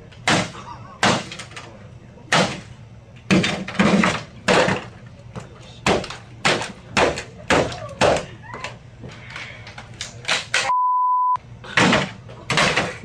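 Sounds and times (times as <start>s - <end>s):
censor bleep: 10.7s - 11.4s.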